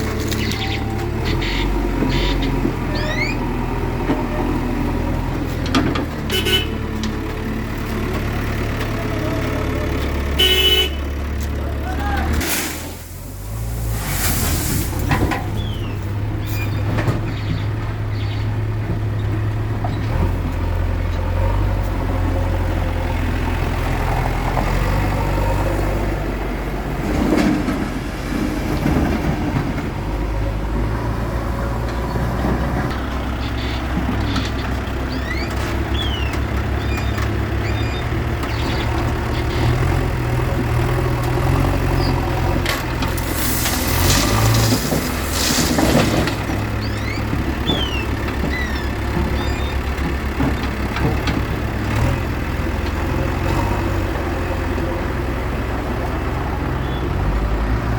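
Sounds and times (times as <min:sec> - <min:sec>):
backhoe diesel engine running: 0:00.0 - 0:57.9.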